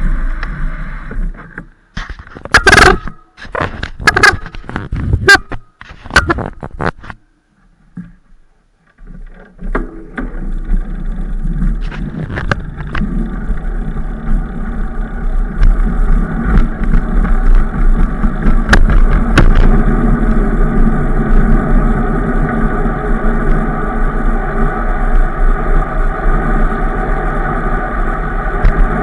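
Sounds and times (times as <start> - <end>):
bike riding noise: 0.0 - 29.0
scattered clicks and knocks: 1.4 - 7.2, 8.8 - 14.4, 15.4 - 20.4.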